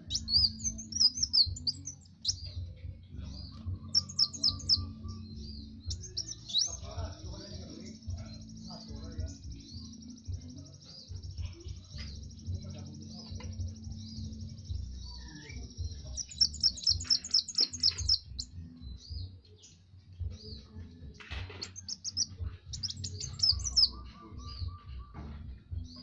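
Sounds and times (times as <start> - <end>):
sharp high bird chirps: 0.0 - 2.6, 3.4 - 6.9, 13.6 - 18.6, 21.6 - 24.8.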